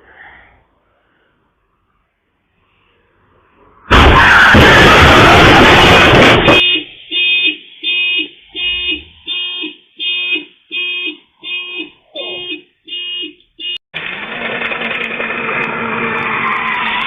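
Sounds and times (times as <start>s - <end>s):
loud crash noise: 3.9s - 6.7s
vehicle horn beeping: 6.4s - 13.8s.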